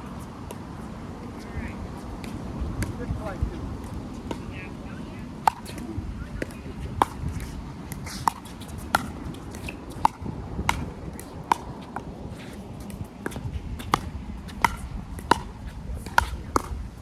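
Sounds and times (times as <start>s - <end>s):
wind rumble on microphone: 0.0s - 17.0s
paddles striking plastic ball: 5.4s - 11.7s.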